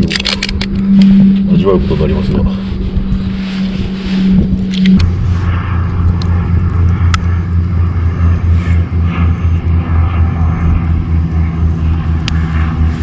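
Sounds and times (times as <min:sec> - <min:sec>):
sharp clicks: 0:00.0 - 0:01.1
low pulsing engine hum: 0:00.0 - 0:13.0.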